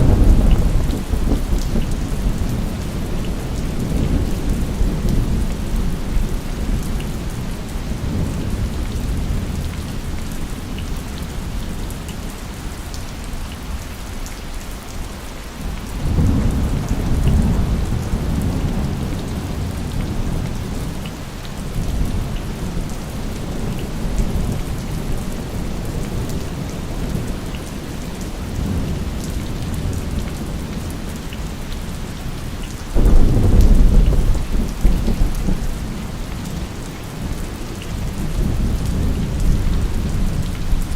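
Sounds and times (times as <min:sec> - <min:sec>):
thunder clap: 0:00.0 - 0:02.8, 0:33.0 - 0:36.0
thunder rumbling: 0:00.0 - 0:10.1, 0:16.0 - 0:21.0, 0:32.9 - 0:40.9
steady rain: 0:00.0 - 0:40.9.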